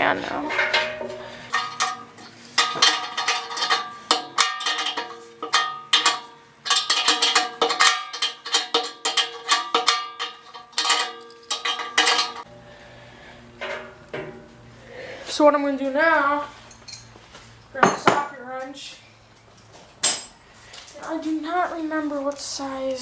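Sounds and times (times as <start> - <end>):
metallic clinks and knocks: 1.5 - 12.4.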